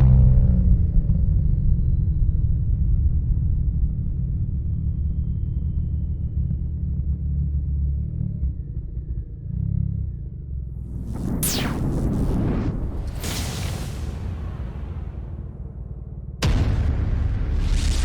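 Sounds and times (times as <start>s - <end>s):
faint high whine: 10.7s - 15.8s.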